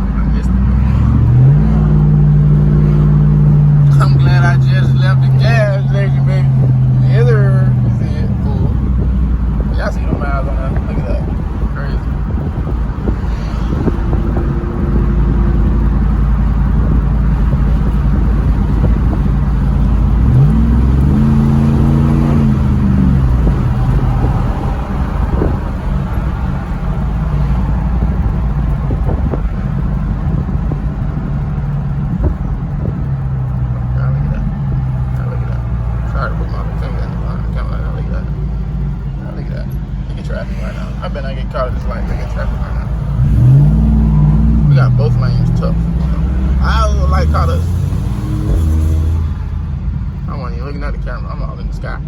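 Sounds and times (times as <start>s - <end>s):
road rumble: 0.0s - 52.0s
truck engine: 0.0s - 52.0s.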